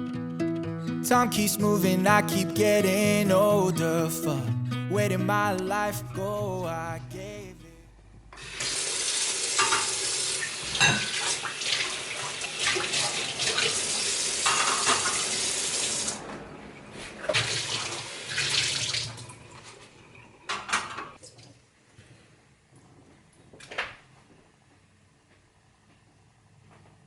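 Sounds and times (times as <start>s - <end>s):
tap running water into sink: 8.4s - 13.8s.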